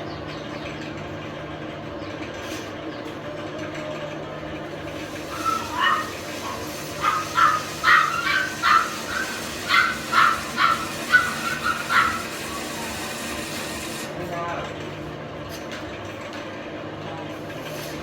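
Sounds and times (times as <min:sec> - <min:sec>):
dog barking: 0:05.3 - 0:12.6.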